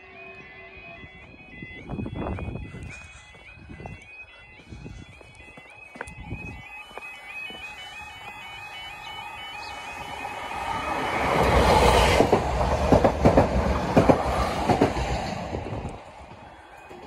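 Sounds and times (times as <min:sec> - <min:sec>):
two-tone crossing alarm: 0:00.0 - 0:17.0
train rumbling past: 0:07.5 - 0:17.0.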